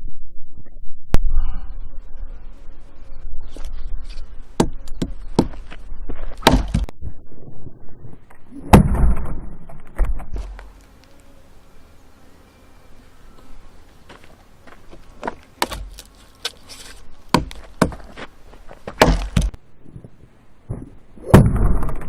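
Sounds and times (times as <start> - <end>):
blade chopping firewood: 6.3 - 6.9, 15.6 - 18.2, 18.9 - 19.6.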